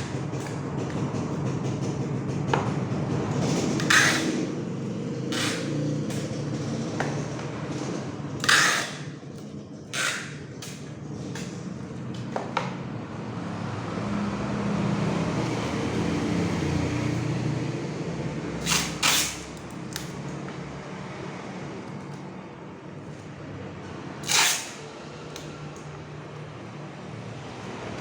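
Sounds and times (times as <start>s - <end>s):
short hissing scraping bursts: 9.9s - 10.4s.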